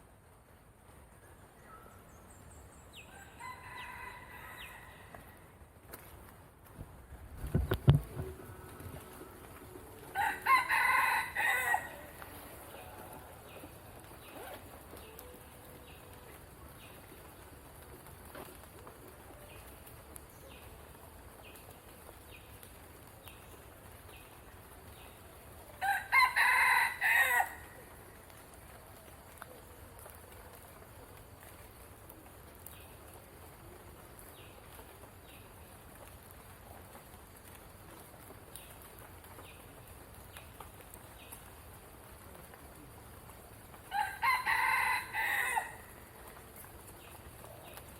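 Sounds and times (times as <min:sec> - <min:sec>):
rooster crowing: 0:03.1 - 0:05.2, 0:10.1 - 0:12.2, 0:25.8 - 0:27.7, 0:43.9 - 0:45.9.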